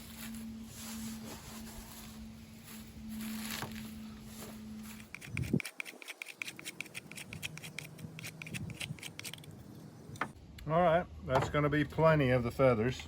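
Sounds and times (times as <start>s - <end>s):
low steady hum: 0.0s - 5.6s
knife scraping wood: 4.8s - 9.6s.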